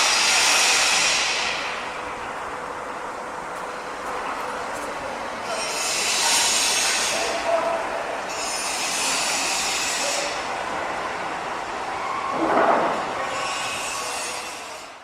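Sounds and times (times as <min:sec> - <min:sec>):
machinery hissing loudly: 0:00.0 - 0:02.1, 0:05.4 - 0:15.0
construction site din: 0:00.0 - 0:15.0.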